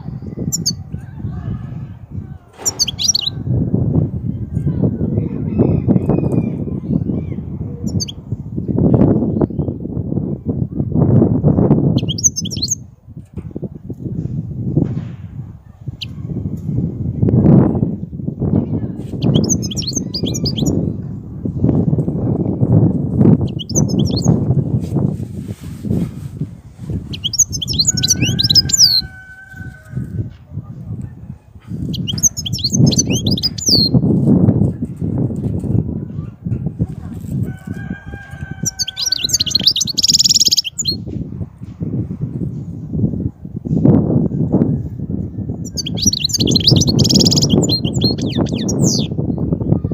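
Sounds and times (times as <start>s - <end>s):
bird twittering: 2.6s - 3.3s, 12.0s - 12.8s, 27.1s - 29.0s, 31.9s - 34.0s, 38.7s - 41.0s, 45.7s - 49.1s.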